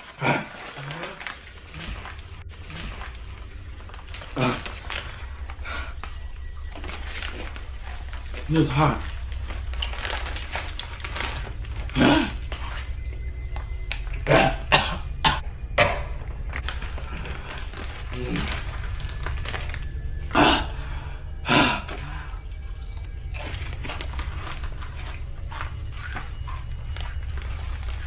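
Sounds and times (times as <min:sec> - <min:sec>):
person coughing: 0:14.2 - 0:15.5.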